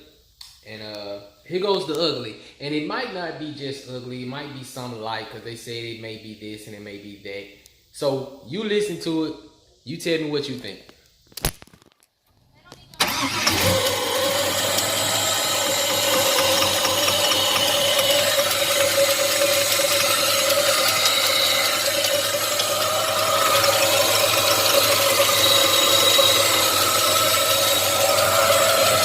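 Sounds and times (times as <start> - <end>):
engine running: 13.0 - 29.0
rapid mechanical ticking: 13.0 - 29.0.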